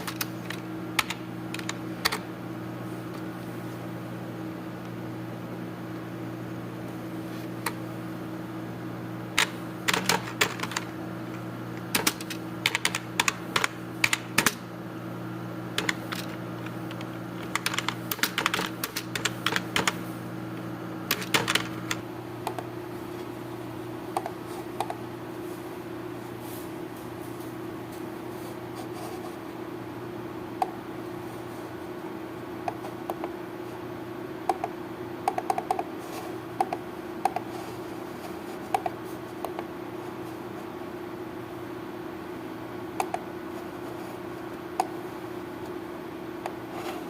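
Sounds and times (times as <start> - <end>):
keyboard typing: 0.0 - 2.2, 9.4 - 10.9, 11.9 - 14.6, 15.8 - 20.0, 21.1 - 22.7, 34.5 - 35.9, 36.6 - 37.5, 43.0 - 43.3
steady low hum: 0.0 - 47.0.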